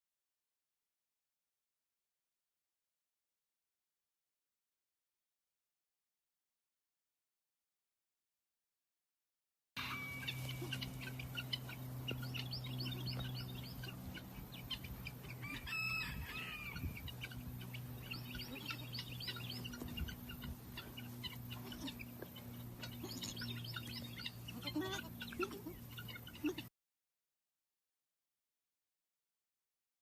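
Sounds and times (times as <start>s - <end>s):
chicks peeping: 9.8s - 26.7s
steady low hum: 9.8s - 26.7s.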